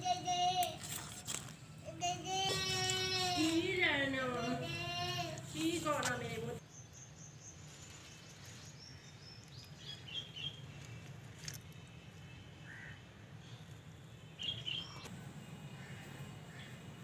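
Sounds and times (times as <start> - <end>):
birds chirping: 5.6 - 17.0.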